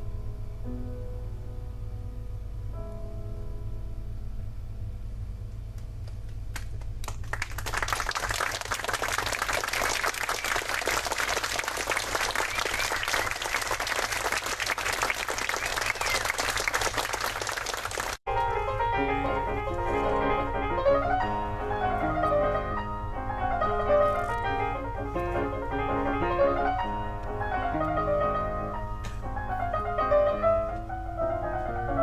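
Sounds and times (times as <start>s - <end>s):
piano music: 0.0s - 4.6s, 18.3s - 32.0s
crowd clapping: 6.0s - 18.2s.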